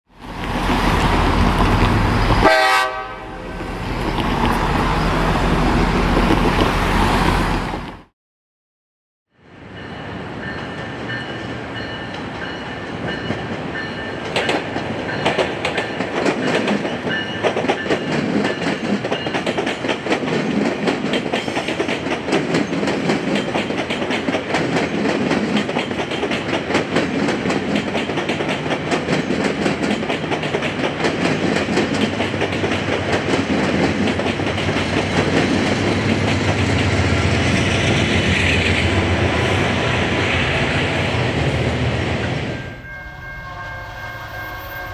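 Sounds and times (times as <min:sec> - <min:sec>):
passing train rumble: 0:00.1 - 0:08.1, 0:09.4 - 0:44.9
wheels clicking over rail joints: 0:12.9 - 0:37.4.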